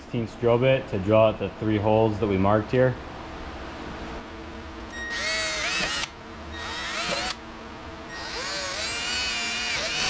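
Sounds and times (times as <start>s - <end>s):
power drill boring holes: 5.1s - 7.4s, 8.2s - 10.0s.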